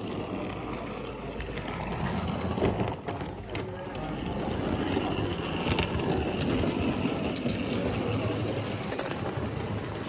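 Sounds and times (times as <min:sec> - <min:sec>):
model train motor whirring: 0:00.0 - 0:10.0
wheels and gears rattling: 0:00.0 - 0:10.0.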